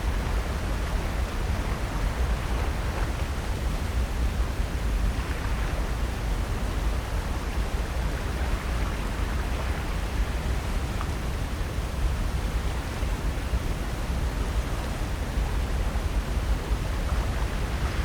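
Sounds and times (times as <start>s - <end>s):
wind: 0.0s - 18.0s
ocean surf: 14.2s - 18.0s.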